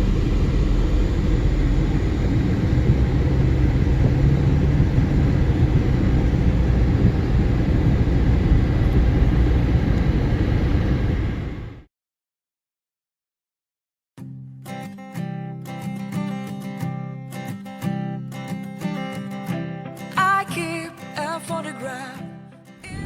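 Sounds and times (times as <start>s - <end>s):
vehicle driving rumble: 0.0s - 11.8s.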